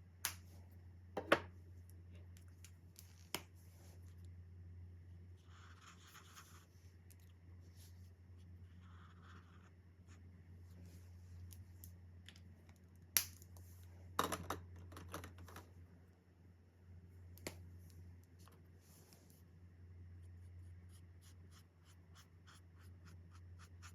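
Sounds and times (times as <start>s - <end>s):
steady low hum: 0.0s - 23.9s
marker scratching on paper: 20.3s - 23.9s.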